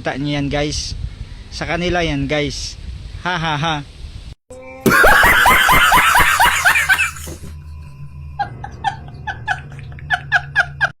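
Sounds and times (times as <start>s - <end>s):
man laughing loudly: 4.8s - 7.5s, 8.4s - 10.9s.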